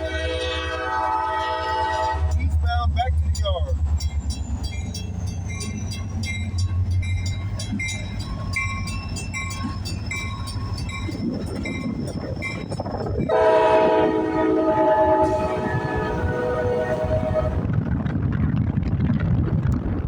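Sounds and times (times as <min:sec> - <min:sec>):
locomotive air horn blowing: 0:00.0 - 0:02.4, 0:13.3 - 0:17.6
diesel locomotive rumbling past: 0:00.0 - 0:20.0
bell ringing rapidly: 0:02.8 - 0:12.8.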